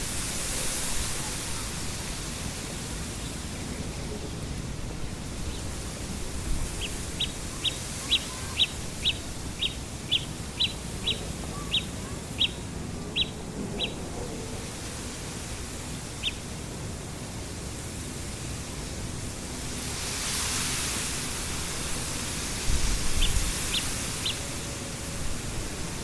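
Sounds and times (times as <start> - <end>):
wind noise: 0.0 - 15.1, 19.7 - 26.0
bird giving sharp high calls: 6.8 - 14.0, 16.2 - 16.4.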